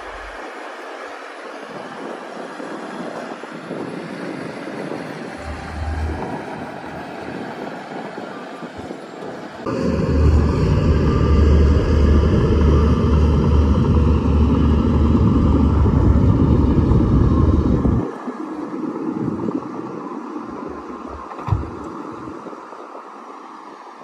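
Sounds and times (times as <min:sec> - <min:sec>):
bulldozer diesel engine rumbling: 0:05.4 - 0:07.6, 0:09.7 - 0:18.0.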